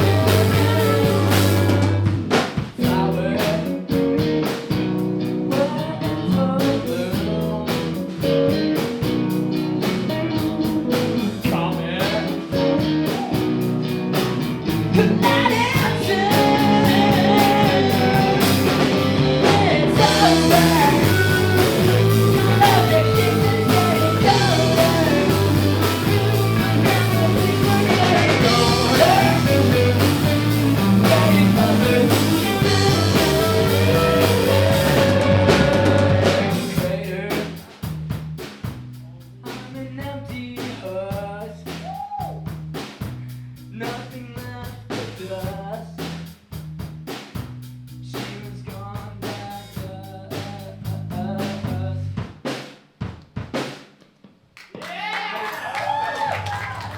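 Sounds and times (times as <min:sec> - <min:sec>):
person singing: 0:00.0 - 0:02.1, 0:02.8 - 0:04.6, 0:05.5 - 0:08.2, 0:10.1 - 0:13.6, 0:14.9 - 0:37.6
repeating bass line: 0:00.0 - 0:37.6
rock band playing: 0:00.0 - 0:48.5.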